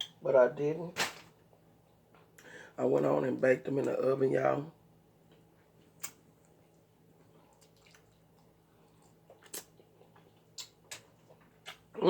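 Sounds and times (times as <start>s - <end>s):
wet mouth clicks and smacks: 7.6s - 8.2s, 9.0s - 11.9s.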